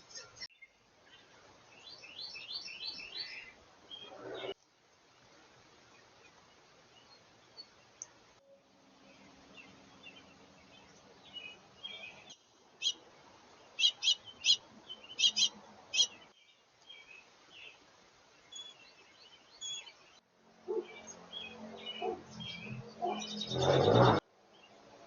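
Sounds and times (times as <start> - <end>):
birds chirping and calling: 0.0 - 4.6, 9.0 - 17.8, 20.7 - 24.2
loud sharp bird chirps: 13.8 - 16.3.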